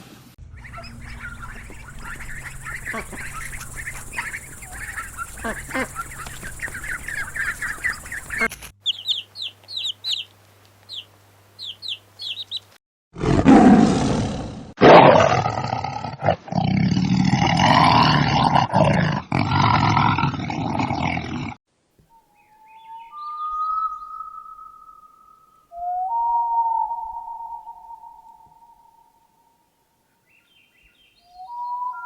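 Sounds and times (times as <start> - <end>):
short bird chirps: 0.5 - 10.3, 22.1 - 25.7
rough animal roar: 13.2 - 21.6.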